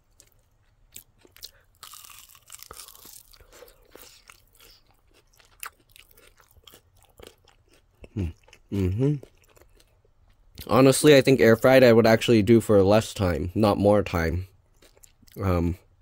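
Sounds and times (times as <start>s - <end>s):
chewing crispy chicken wing: 0.0s - 10.7s, 14.7s - 15.6s.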